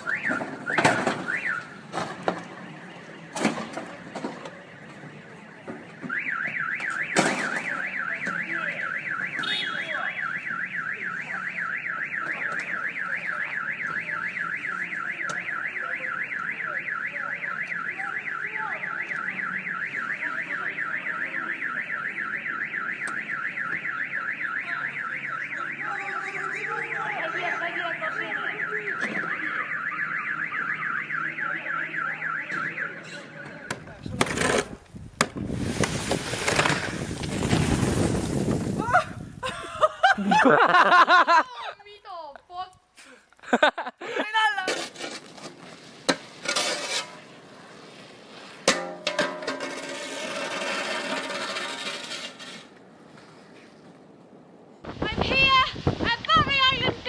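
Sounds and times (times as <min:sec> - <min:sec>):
car alarm warbling: 0:00.0 - 0:01.8, 0:06.1 - 0:33.8.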